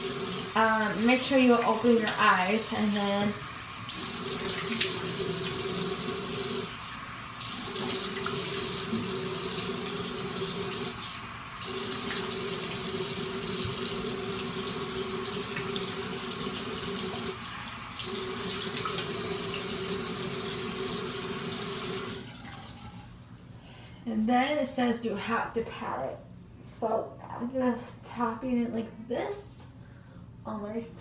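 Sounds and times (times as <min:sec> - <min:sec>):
sink tap running: 0:00.0 - 0:22.9.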